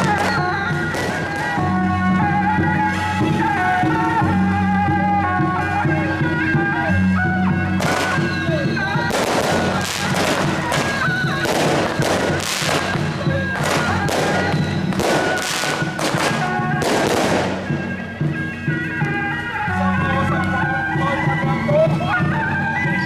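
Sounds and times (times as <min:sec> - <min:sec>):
firecrackers crackling: 0:00.0 - 0:06.8, 0:07.6 - 0:19.6
procession band music: 0:00.0 - 0:23.0.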